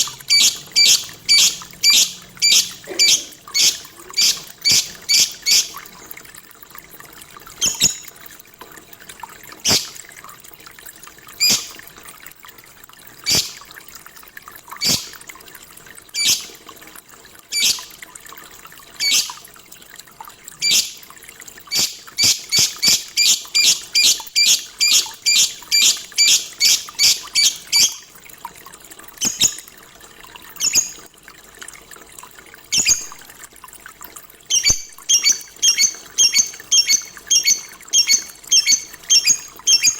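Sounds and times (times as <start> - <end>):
lovebird chirping: 0.0 - 5.9, 7.6 - 8.1, 9.7 - 10.0, 11.4 - 11.7, 13.3 - 13.6, 14.8 - 15.2, 16.2 - 16.5, 17.5 - 17.9, 19.0 - 19.3, 21.7 - 28.0, 34.5 - 39.9.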